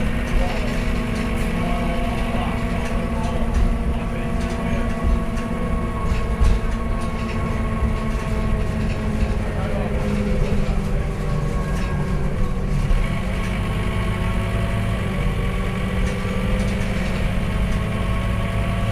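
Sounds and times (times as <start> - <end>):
bus diesel engine rumble: 0.0 - 18.9
drivetrain hum: 0.0 - 18.9
light rattles: 0.1 - 13.8.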